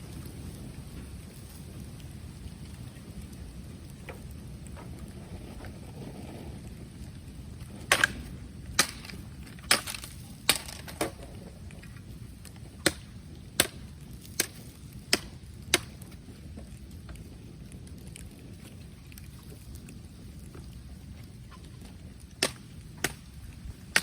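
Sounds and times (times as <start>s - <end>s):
bonfire cracks and pops: 0.0s - 24.0s
low fire rumble: 0.0s - 24.0s.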